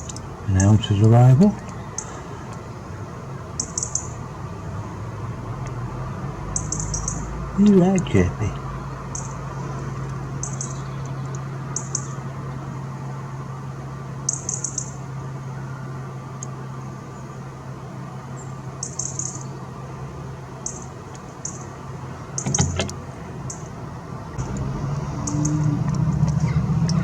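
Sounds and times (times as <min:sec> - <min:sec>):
small bird chirping: 0:00.0 - 0:00.8, 0:01.4 - 0:02.2, 0:03.5 - 0:04.2, 0:06.4 - 0:07.4, 0:08.6 - 0:09.4, 0:10.4 - 0:12.3, 0:14.2 - 0:15.0, 0:18.4 - 0:19.6, 0:20.6 - 0:21.8, 0:23.4 - 0:23.7, 0:25.1 - 0:27.0
steady low hum: 0:00.0 - 0:27.0
brief knock: 0:22.4 - 0:23.0.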